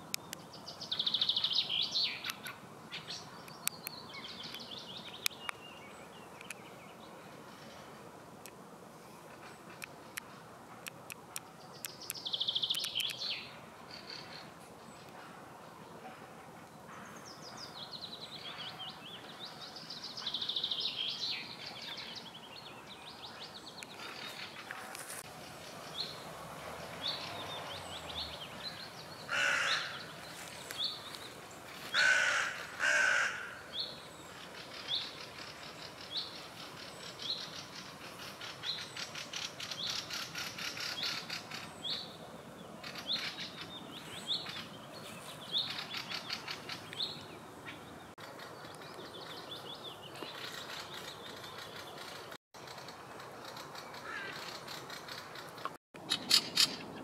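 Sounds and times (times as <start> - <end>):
loud harsh bird calls: 28.7 - 30.2, 31.9 - 33.8, 50.3 - 57.0.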